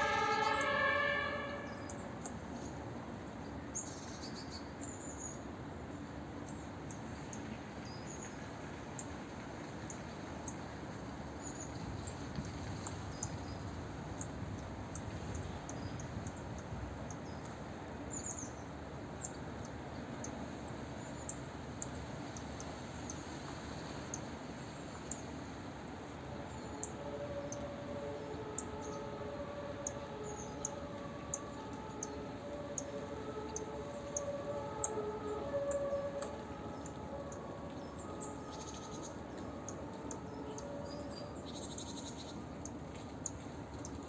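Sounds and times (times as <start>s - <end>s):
distant two-tone siren: 0.0s - 2.6s, 26.2s - 43.1s
background city hum: 0.0s - 44.0s.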